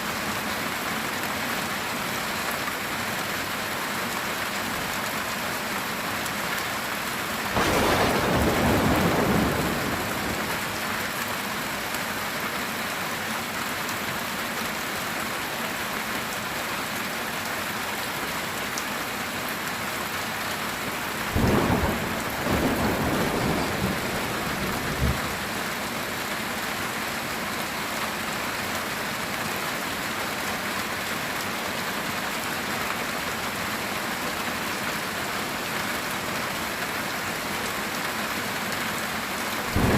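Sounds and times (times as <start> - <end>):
rain on a tin roof: 0.0 - 39.9
thunder rumbling: 7.6 - 10.8, 21.3 - 25.5.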